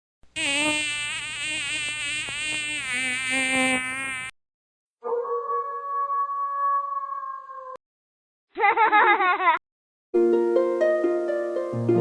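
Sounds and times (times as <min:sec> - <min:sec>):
buzzy nasal tune: 0:00.4 - 0:04.3.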